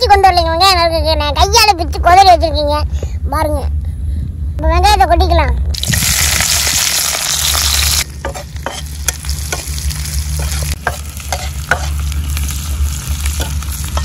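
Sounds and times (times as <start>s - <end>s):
onions sizzling in hot oil: 5.8s - 14.0s
spatula scraping a pan: 8.2s - 9.8s, 10.4s - 12.1s.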